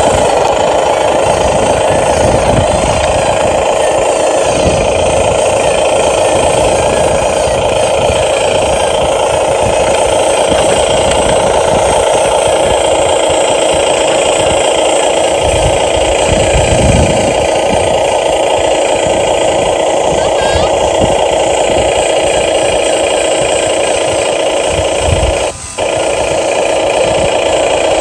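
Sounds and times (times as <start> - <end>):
toy excavator motors whining: 0.0 - 28.0.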